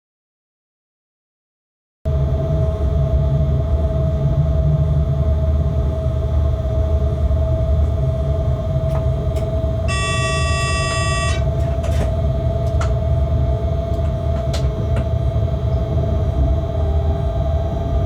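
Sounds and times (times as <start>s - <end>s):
constant hum: 2.1s - 18.0s
locomotive cab rumble: 6.0s - 18.0s
high tone: 9.9s - 11.6s.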